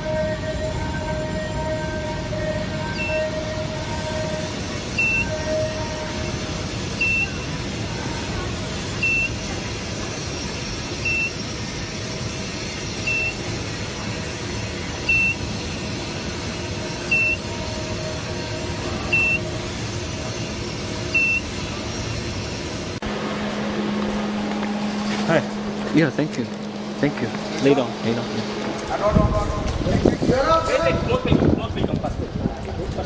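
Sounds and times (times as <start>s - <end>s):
steady machine hum: 0.0s - 33.0s
short high electronic beeps: 4.9s - 5.7s, 7.0s - 7.5s, 9.0s - 9.4s, 17.1s - 17.6s, 19.1s - 19.5s, 21.1s - 21.6s, 23.0s - 30.2s.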